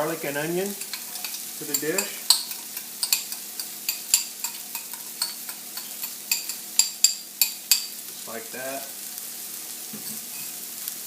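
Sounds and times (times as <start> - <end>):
mushrooms sizzling in a pan: 0.0 - 11.0.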